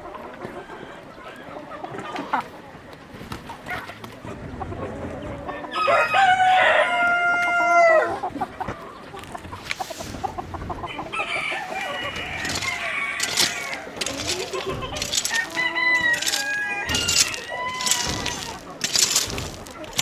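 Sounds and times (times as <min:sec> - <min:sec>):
chickens clucking: 0:00.0 - 0:20.0
rooster crowing: 0:05.7 - 0:08.1, 0:11.1 - 0:18.0.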